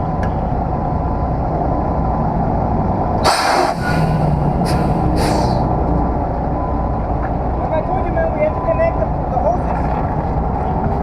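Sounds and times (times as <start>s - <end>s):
air brakes hissing: 3.2s - 5.7s.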